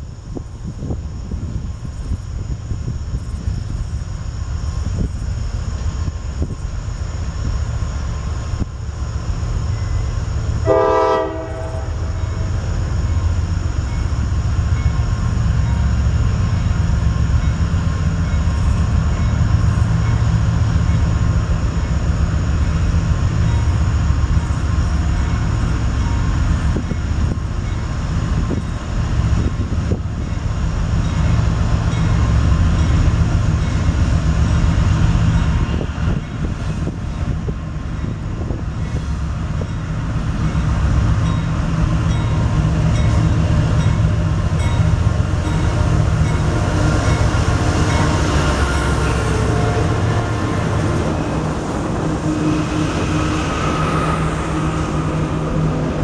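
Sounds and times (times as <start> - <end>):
freight train rumbling past: 0.0 - 56.0
locomotive horn blast: 10.6 - 12.4, 45.6 - 55.7.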